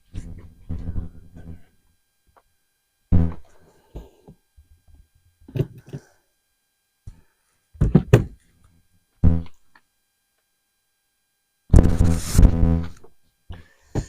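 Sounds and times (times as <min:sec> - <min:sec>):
items knocking in a storage bin: 0:07.8 - 0:08.4.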